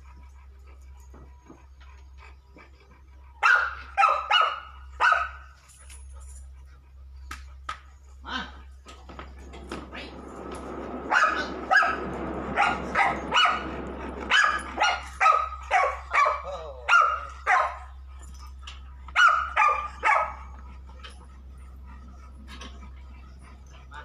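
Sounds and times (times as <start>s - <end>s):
dog barking: 3.4s - 5.5s, 11.1s - 17.9s, 19.2s - 20.5s.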